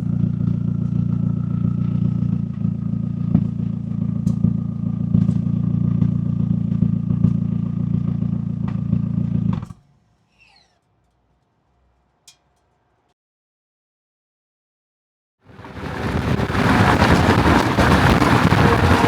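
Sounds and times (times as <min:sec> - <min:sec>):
exhaust clicks and pops: 0:00.0 - 0:12.8, 0:15.6 - 0:19.0
car engine idling: 0:15.6 - 0:19.0.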